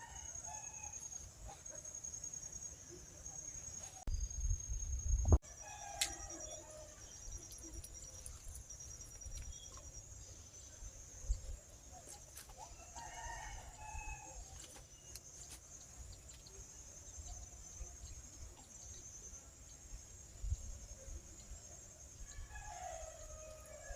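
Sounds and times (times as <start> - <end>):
rooster crowing: 5.5 - 7.0, 12.8 - 14.4, 22.3 - 23.9.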